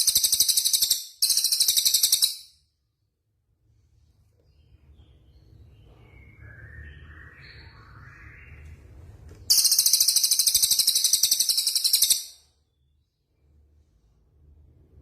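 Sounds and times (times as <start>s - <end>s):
songbird warbling: 9.5s - 12.3s.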